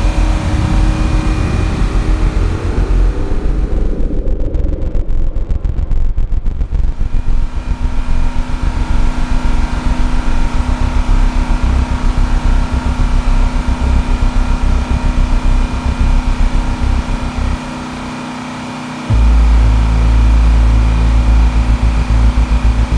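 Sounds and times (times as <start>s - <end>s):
diesel generator engines rumbling: 0.0s - 5.4s
steady whine: 0.0s - 22.9s.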